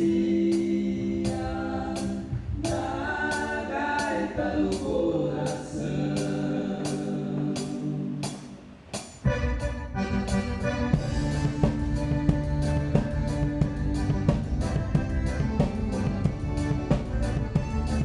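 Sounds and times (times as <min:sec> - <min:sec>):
drum kit beat: 0:00.0 - 0:18.0
live band playing: 0:07.6 - 0:18.0.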